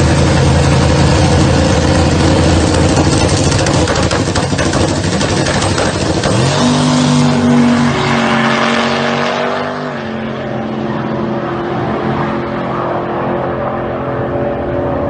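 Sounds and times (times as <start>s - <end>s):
turbo engine running hard: 0.0s - 12.0s.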